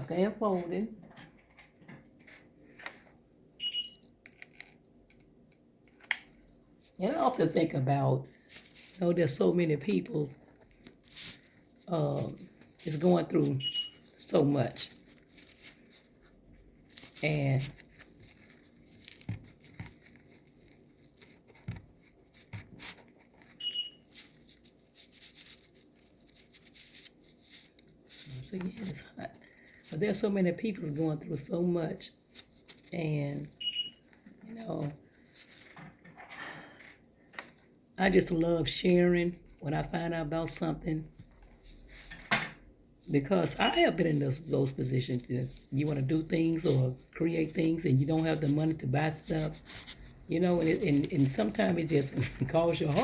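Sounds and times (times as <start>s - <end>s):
short high beep: 3.6s - 4.0s
craft material rustling: 8.3s - 36.2s, 40.6s - 42.4s, 43.0s - 53.0s.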